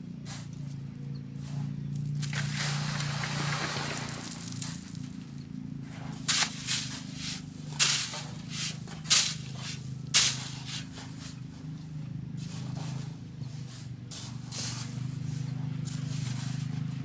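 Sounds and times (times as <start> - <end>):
low engine hum: 0.0 - 17.0
sand thrown through sifting screen: 2.2 - 5.0, 6.2 - 11.4, 13.7 - 16.6.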